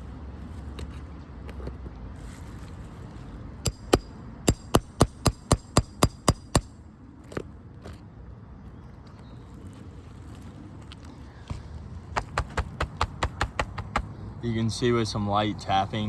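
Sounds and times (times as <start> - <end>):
sharp taps on roof shingle: 3.7 - 6.7, 11.5 - 14.2.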